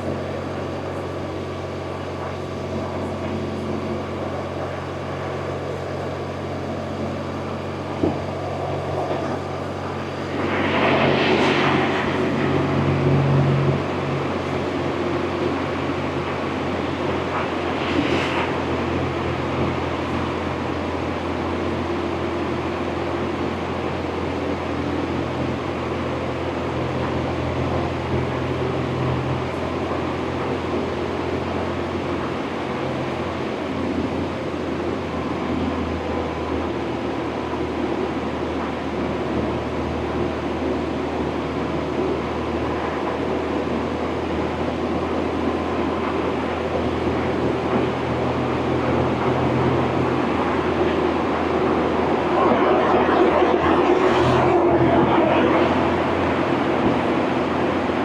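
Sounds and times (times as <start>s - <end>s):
road noise: 0.0s - 58.0s
wind noise: 0.0s - 58.0s.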